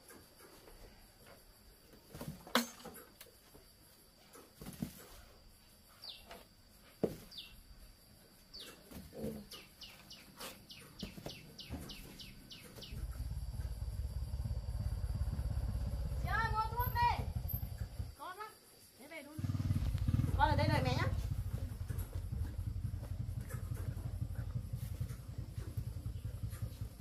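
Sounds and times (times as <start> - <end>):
bird chirping: 6.0 - 6.4, 7.3 - 7.6, 8.5 - 13.9
low engine rumble: 11.9 - 18.2, 19.4 - 27.0.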